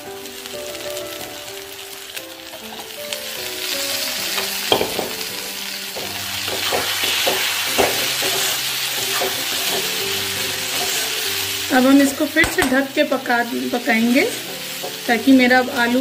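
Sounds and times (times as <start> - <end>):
potatoes sizzling in a pan: 0.0 - 16.0
spatula scraping a pan: 6.0 - 11.5.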